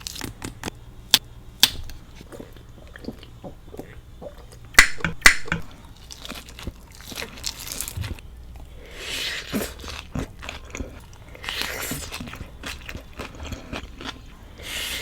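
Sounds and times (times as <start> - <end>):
crunching raw vegetables: 0.0 - 8.7
wet chewing clicks: 1.6 - 8.7.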